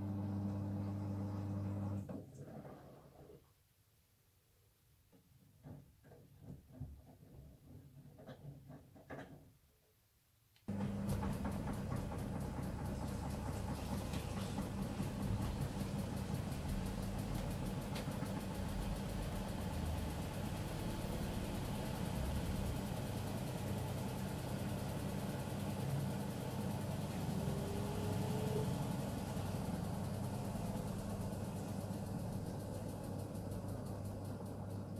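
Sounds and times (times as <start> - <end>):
washing machine running: 0.0 - 3.0, 10.7 - 34.9.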